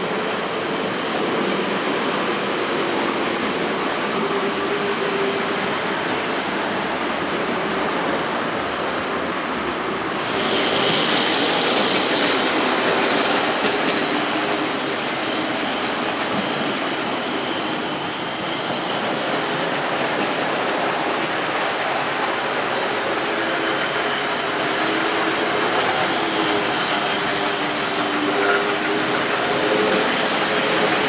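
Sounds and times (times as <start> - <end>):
model train rattling hum: 0.0 - 31.0.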